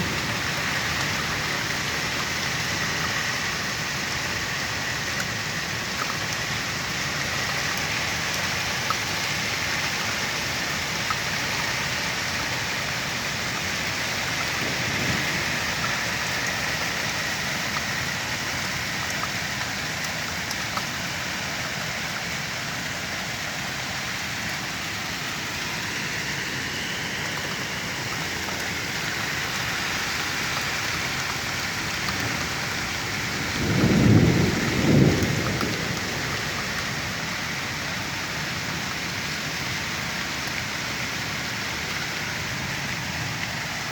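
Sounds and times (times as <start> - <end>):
heavy rain and hail: 0.0 - 43.9
low rumble of thunder: 13.1 - 20.8, 31.1 - 39.3.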